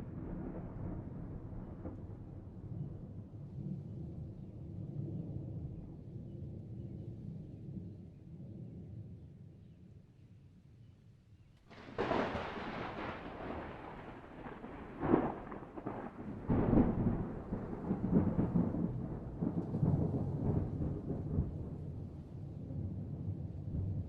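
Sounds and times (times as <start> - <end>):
thunder cracking and rumbling: 0.0 - 5.8, 11.7 - 24.0.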